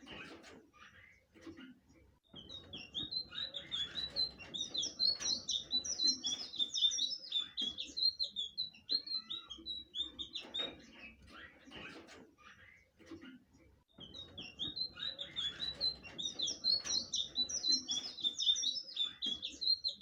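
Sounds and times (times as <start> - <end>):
bird warbling song: 2.3 - 13.0, 13.9 - 20.0.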